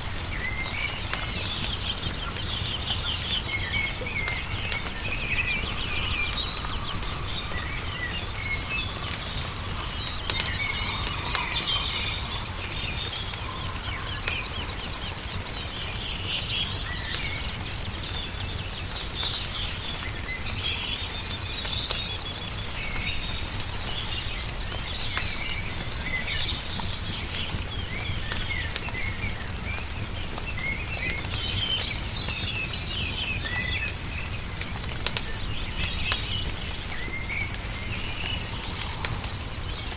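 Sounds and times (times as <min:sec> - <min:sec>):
small songbirds chirping: 0:00.0 - 0:39.9
wood fire crackling: 0:00.0 - 0:39.9
steady low rumble: 0:01.0 - 0:18.5.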